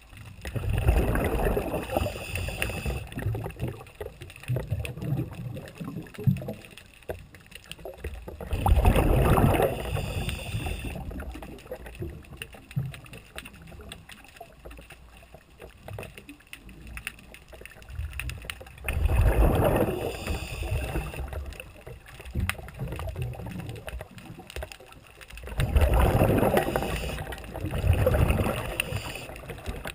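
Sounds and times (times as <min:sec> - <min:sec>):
water rushing around boat: 0:25.6 - 0:29.9.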